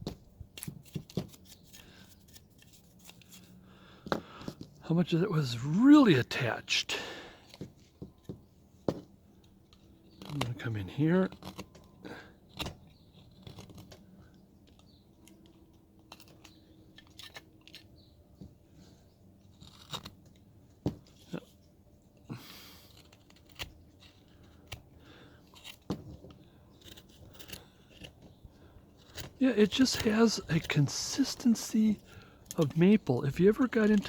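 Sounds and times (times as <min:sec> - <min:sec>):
blade carving hard wood: 0:19.5 - 0:21.3, 0:22.4 - 0:34.0.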